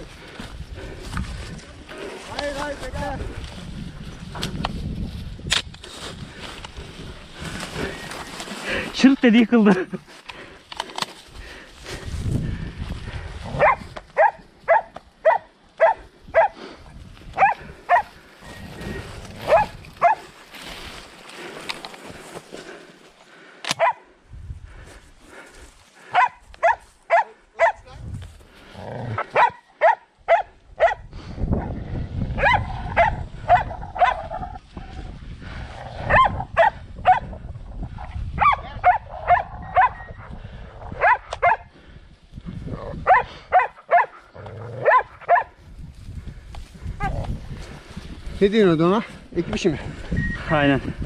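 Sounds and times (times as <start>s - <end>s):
dogs barking: 13.5s - 16.6s, 17.4s - 18.1s, 19.4s - 20.3s, 23.7s - 24.1s, 26.1s - 27.8s, 29.2s - 31.0s, 32.4s - 34.4s, 36.0s - 37.3s, 38.4s - 40.3s, 40.9s - 41.7s, 43.0s - 44.2s, 44.8s - 45.6s.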